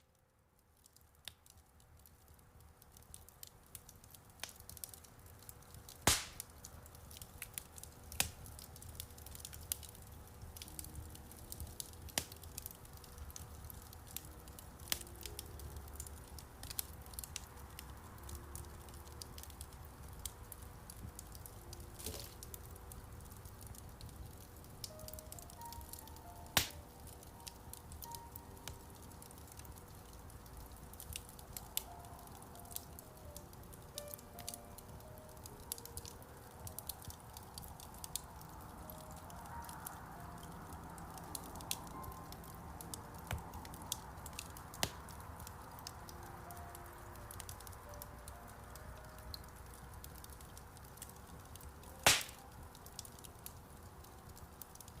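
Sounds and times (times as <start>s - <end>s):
wood fire crackling: 0.0s - 55.0s
soft piano notes: 3.7s - 54.7s
loud sharp pops: 6.1s - 6.5s, 52.0s - 52.4s.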